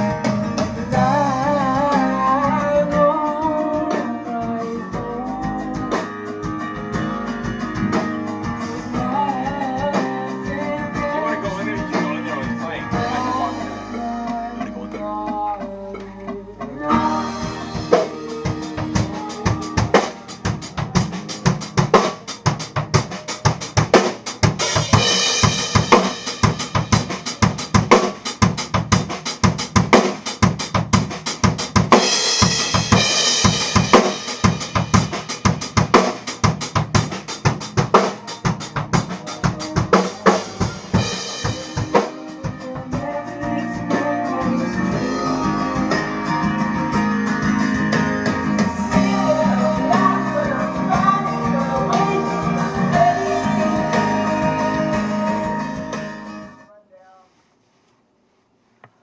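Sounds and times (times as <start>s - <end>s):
drum kit rock groove: 0.0s - 56.6s
guitar: 0.0s - 56.8s
cymbals: 16.9s - 28.5s, 31.9s - 42.8s.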